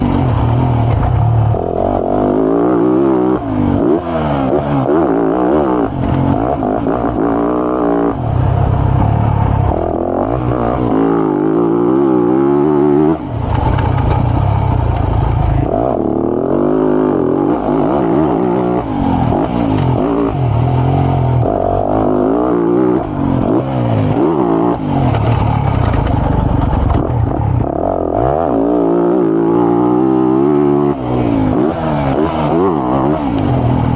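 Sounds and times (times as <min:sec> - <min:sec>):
motocross bike engine revving: 0:00.0 - 0:33.9.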